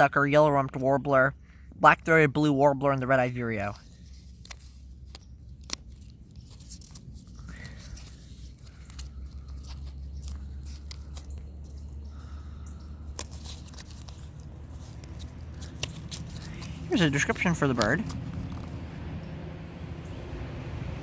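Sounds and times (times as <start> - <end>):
light rustling: 3.7 - 19.4.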